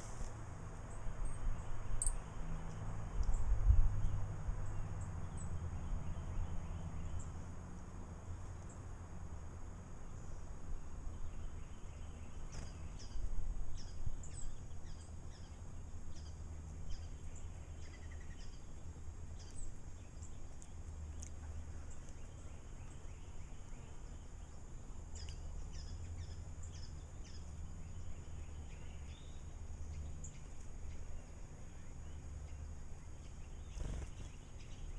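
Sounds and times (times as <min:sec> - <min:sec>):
small birds chirping: 0:00.0 - 0:34.9
faint high whine: 0:21.6 - 0:34.9.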